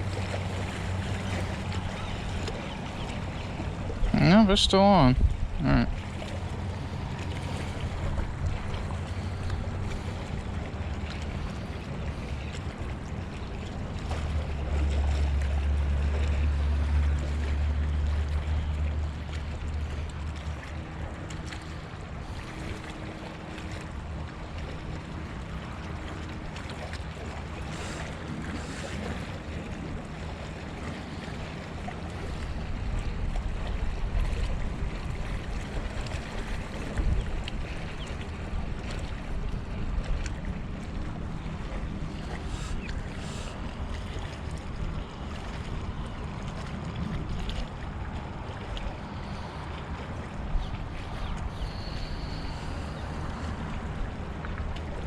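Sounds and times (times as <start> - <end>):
water moving against shore: 0.0 - 55.0
wind buffeting microphone: 5.2 - 12.2.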